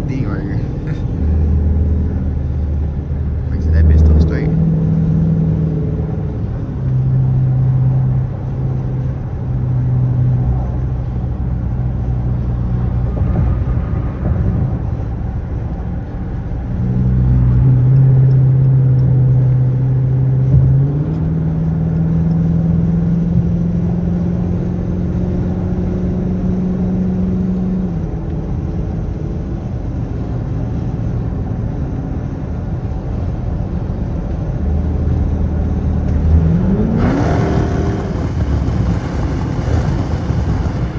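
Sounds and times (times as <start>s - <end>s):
vv eight exhaust droning: 0.0s - 8.1s, 34.5s - 40.9s.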